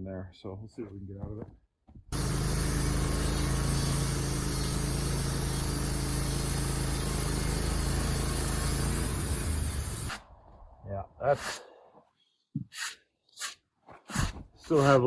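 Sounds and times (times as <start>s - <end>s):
bandsaw mill cutting log: 2.1s - 10.2s, 14.1s - 15.0s.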